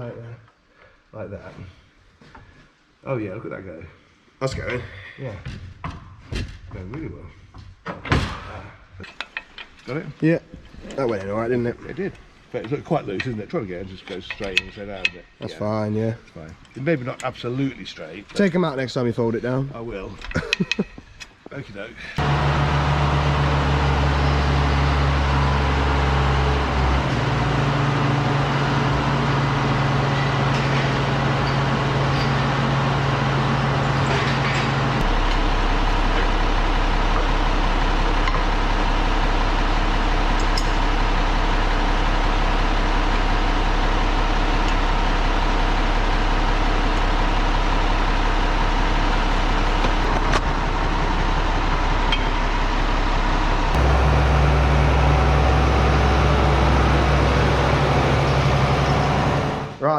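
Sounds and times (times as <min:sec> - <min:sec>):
tractor engine running: 0:22.2 - 0:59.8.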